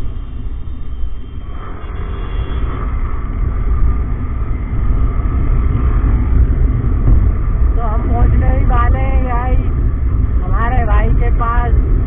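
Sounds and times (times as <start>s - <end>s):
motorcycle riding noise: 0.0s - 10.8s
wind rumble on microphone: 0.0s - 12.0s.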